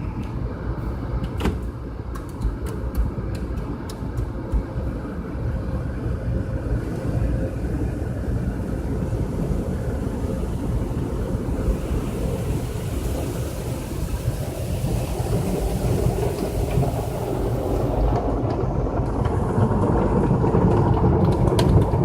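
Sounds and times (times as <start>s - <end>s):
car wash rumble: 0.0s - 22.0s
sharp clicks and taps: 2.1s - 4.9s
water spray hissing: 11.5s - 18.1s.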